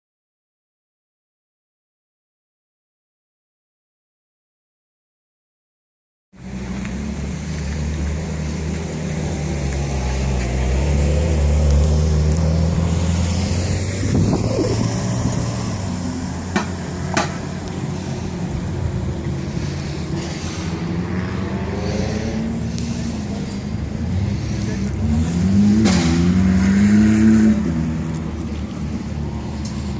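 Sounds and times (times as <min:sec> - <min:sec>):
engine running: 0:06.4 - 0:29.9.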